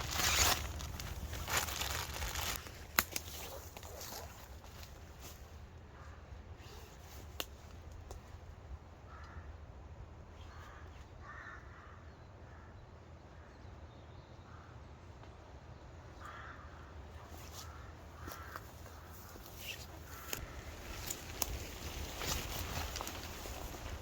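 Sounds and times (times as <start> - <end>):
crows cawing: 9.1 - 9.6, 10.5 - 12.8, 16.2 - 20.8.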